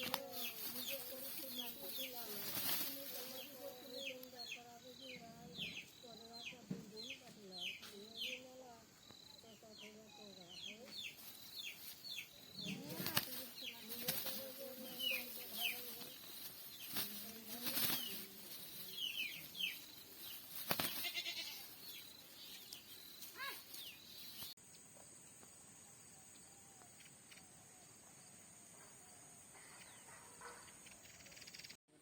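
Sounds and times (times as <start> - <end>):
mynah birds calling: 0.0 - 24.6.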